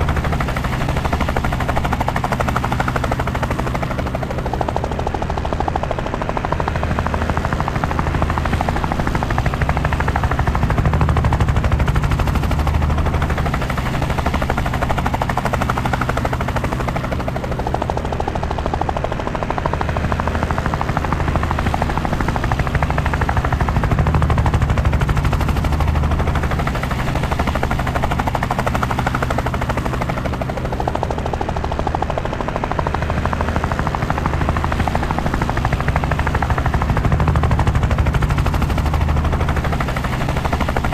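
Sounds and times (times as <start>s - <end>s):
helicopter rotor chop: 0.0s - 40.9s.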